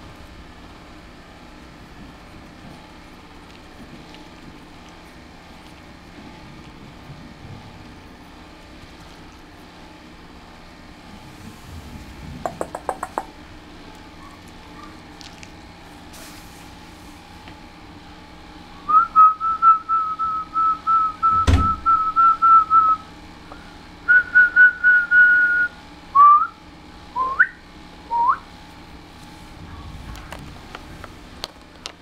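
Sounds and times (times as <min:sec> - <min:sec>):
thump: 0:21.3 - 0:21.8.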